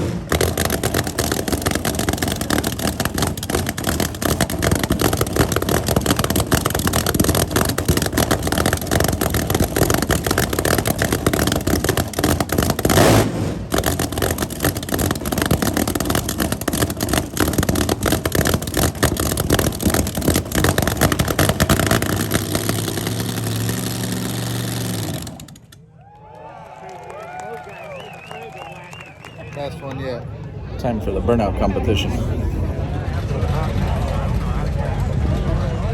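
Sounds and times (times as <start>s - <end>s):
car engine revving: 0.0s - 25.8s.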